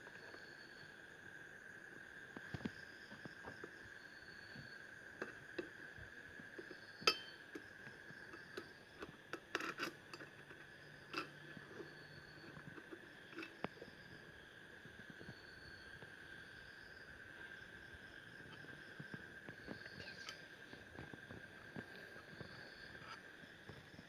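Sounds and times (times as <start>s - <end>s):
small parts and hand tools clicking: 6.6s - 13.8s
faint high-pitched tone: 19.7s - 20.5s.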